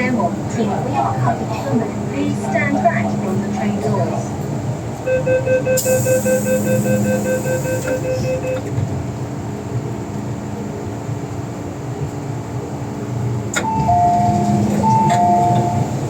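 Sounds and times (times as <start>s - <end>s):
train rumble: 0.0s - 16.0s
rapid warning beeps: 5.1s - 8.6s
train doors hissing: 5.6s - 8.7s, 13.5s - 16.0s.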